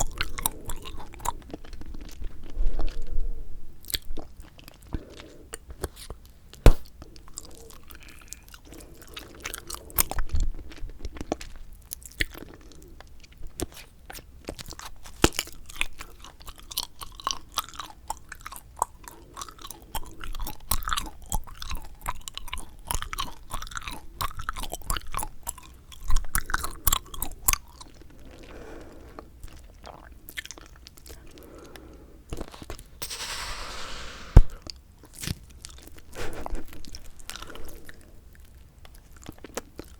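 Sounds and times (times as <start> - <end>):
breathy rush of air: 33.0 - 34.6.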